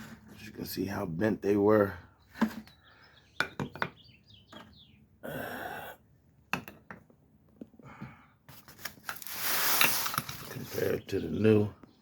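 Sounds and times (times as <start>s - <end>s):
small birds chirping: 0.4s - 6.2s, 10.3s - 12.0s
scraping rustle: 8.5s - 11.0s.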